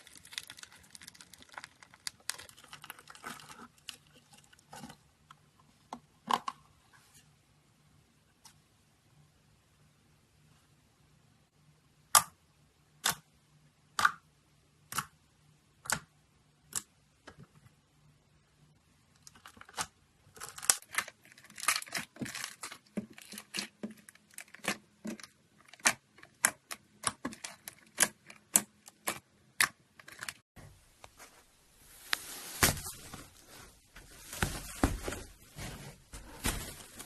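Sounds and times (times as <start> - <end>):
slime popping and crackling: 0.0 - 3.6.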